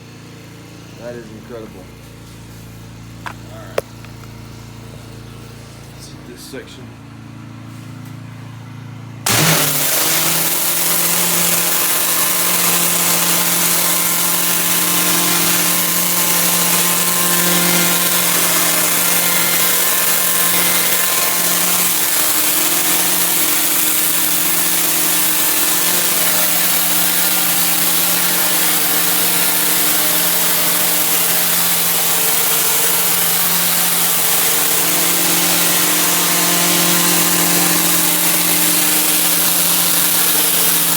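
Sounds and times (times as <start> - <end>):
pressure washer engine drone: 0.0 - 40.9
pressure washer water jet hissing: 9.3 - 40.9.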